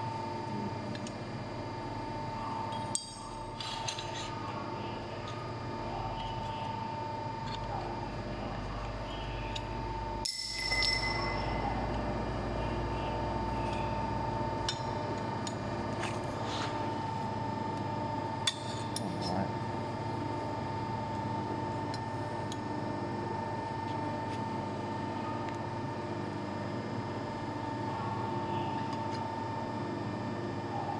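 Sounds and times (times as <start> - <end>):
sharp metallic clinks: 10.2 - 11.6.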